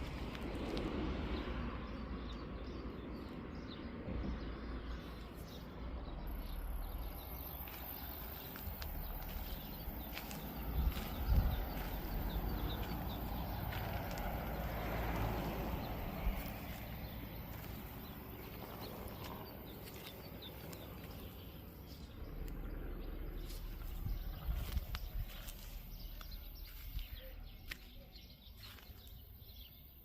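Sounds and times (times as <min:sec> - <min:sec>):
small birds chirping: 0:00.0 - 0:30.0
wind buffeting microphone: 0:08.4 - 0:27.5.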